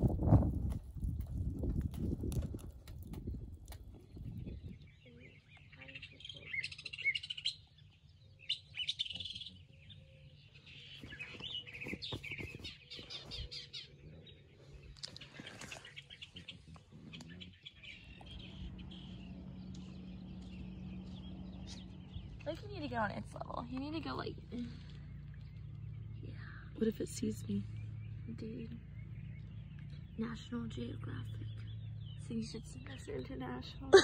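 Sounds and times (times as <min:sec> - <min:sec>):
birds chirping and singing: 0:00.0 - 0:34.0
steady low hum: 0:00.0 - 0:34.0
rustles: 0:10.6 - 0:25.9.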